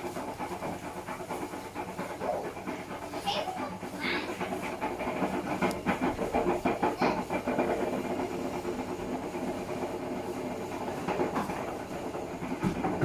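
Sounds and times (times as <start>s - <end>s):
washing machine rushing hiss: 0.0s - 13.0s
box knocking in washing machine drum: 12.5s - 13.0s.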